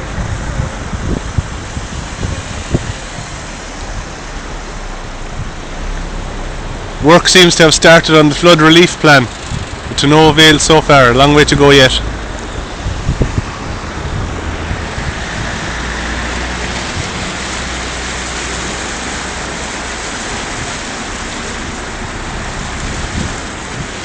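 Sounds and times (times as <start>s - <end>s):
wind on microphone: 0.0s - 7.2s, 9.2s - 24.0s
river rushing: 0.0s - 24.0s.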